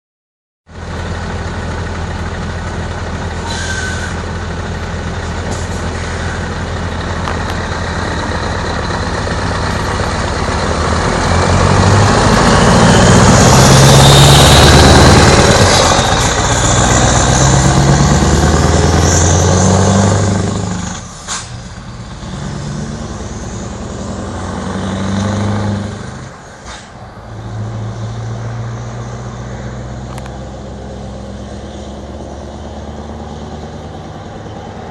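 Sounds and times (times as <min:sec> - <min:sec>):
diesel truck engine running: 0:00.7 - 0:34.9
rising whistle: 0:12.3 - 0:16.7.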